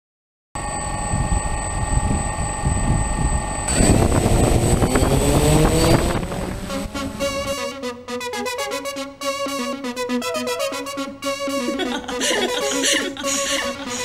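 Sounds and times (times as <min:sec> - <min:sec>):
drone propellers whining: 0:00.6 - 0:07.8, 0:11.1 - 0:14.0.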